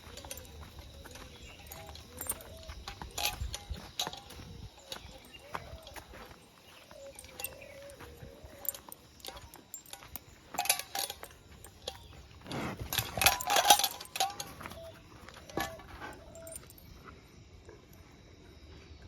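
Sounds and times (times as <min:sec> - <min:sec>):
metallic jingling and clinking: 0:00.0 - 0:17.0
louder metallic rattle: 0:09.2 - 0:14.7.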